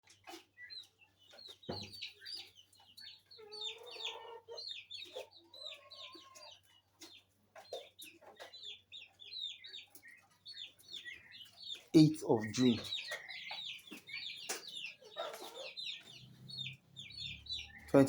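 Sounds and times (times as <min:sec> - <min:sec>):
chickens clucking: 0:00.0 - 0:18.0
chicks cheeping: 0:00.0 - 0:18.0.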